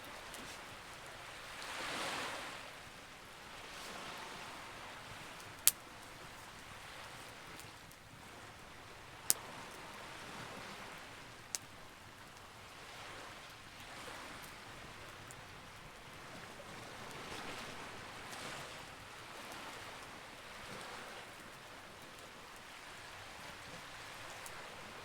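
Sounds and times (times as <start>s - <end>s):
faint fire crackles: 0.0s - 25.0s
fire popping: 5.4s - 8.1s.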